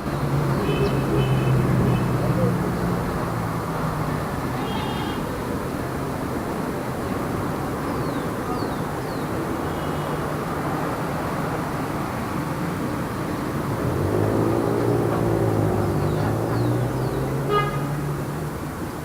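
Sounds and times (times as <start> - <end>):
vehicle passing close by: 0.0 - 4.6, 10.2 - 19.0
car engines and tyre noise: 0.0 - 19.0.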